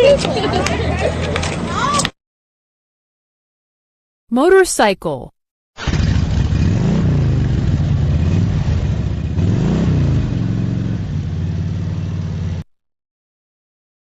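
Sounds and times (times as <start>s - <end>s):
motorcycle engine revving and idling: 5.8s - 12.6s.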